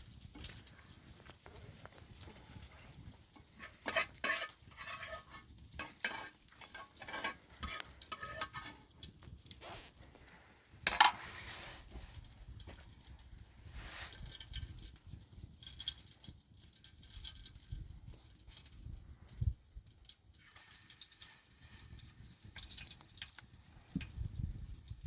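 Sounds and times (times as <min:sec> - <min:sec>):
metal utensil scraping a pan: 0:01.4 - 0:09.1, 0:10.8 - 0:12.0, 0:20.4 - 0:22.7.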